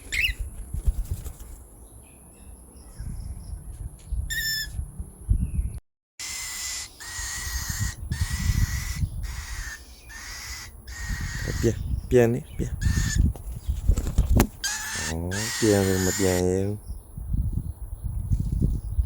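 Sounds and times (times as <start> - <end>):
cockatiel chirp: 0.0 - 0.4, 4.3 - 4.7
raspy hissing begging calls: 6.2 - 11.8, 14.6 - 16.7.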